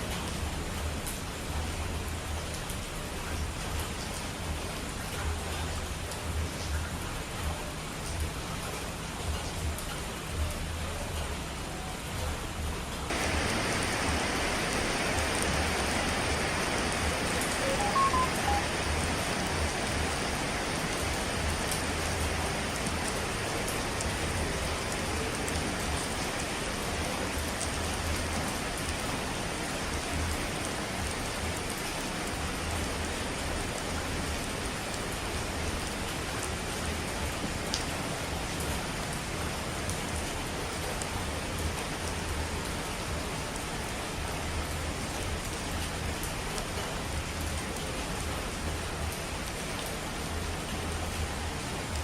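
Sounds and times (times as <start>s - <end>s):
heavy rain hissing: 13.1s - 52.0s.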